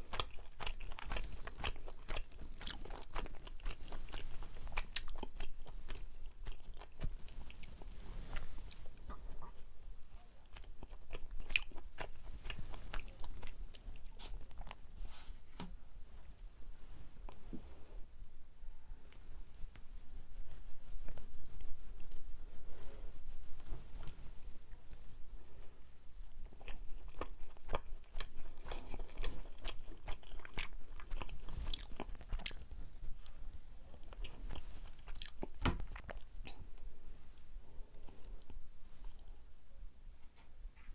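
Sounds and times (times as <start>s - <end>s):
chewing rice cake: 0.0s - 9.6s, 10.4s - 15.1s, 26.4s - 36.6s.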